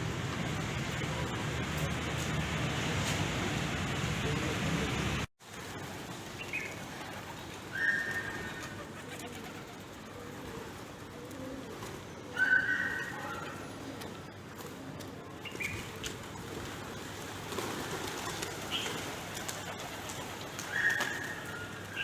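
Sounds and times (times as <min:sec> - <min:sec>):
pigeons cooing: 0:06.5 - 0:22.0.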